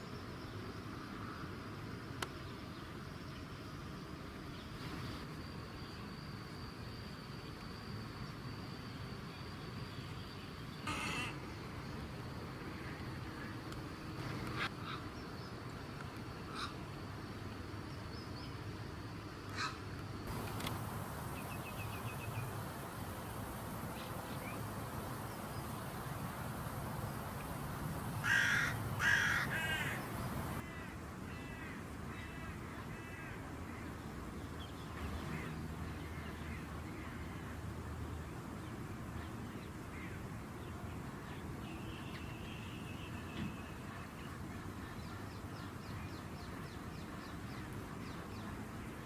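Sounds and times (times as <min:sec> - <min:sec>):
low background hum: 0:05.3 - 0:30.6
crow cawing: 0:10.9 - 0:11.4, 0:28.2 - 0:31.8
small birds chirping: 0:20.3 - 0:30.6.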